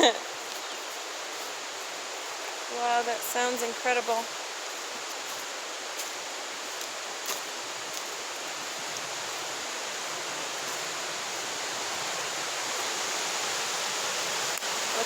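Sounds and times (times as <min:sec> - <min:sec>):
waterfall roaring: 0:01.0 - 0:15.0.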